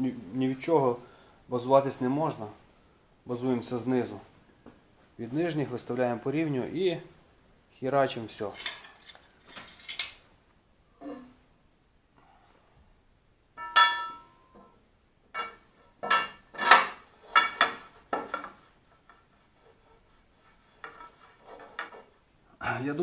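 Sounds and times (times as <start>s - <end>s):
metal parts clanking: 8.5s - 10.2s, 13.6s - 14.3s, 15.3s - 18.5s.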